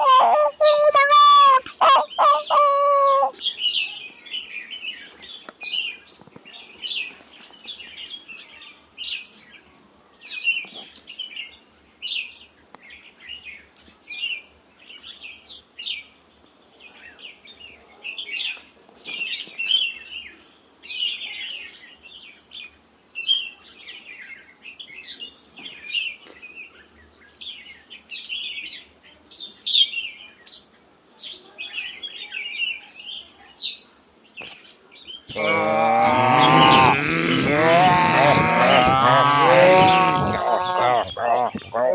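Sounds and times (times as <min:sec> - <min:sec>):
birds chirping: 0:00.0 - 0:05.9, 0:35.2 - 0:41.9.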